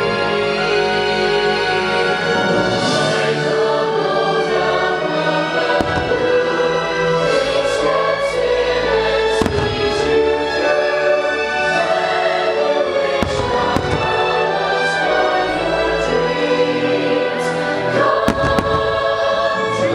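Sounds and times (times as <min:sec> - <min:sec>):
choir and orchestra music: 0:00.0 - 0:19.9
faint firework pops: 0:05.8 - 0:06.2
firework shells bursting: 0:05.8 - 0:07.5, 0:13.2 - 0:14.4.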